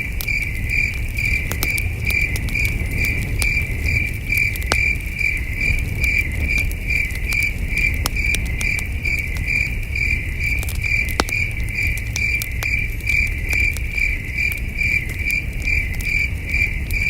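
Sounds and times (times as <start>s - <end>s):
campfire crackling: 0.0s - 17.0s
crickets chirping: 0.0s - 17.0s.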